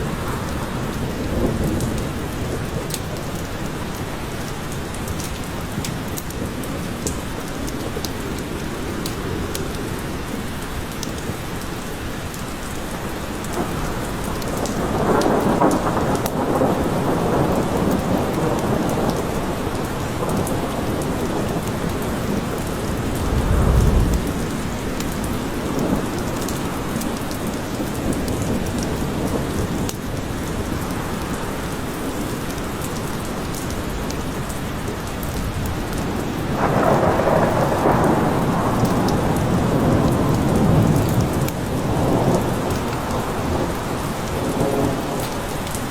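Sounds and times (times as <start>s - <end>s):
steady rain in a forest: 0.0s - 45.9s
thunder rumbling: 20.2s - 26.2s.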